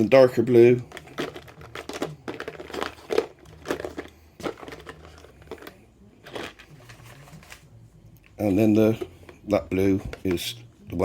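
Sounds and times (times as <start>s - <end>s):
crinkling rustles: 0.8s - 10.4s
plastic pots clicking: 0.9s - 7.6s.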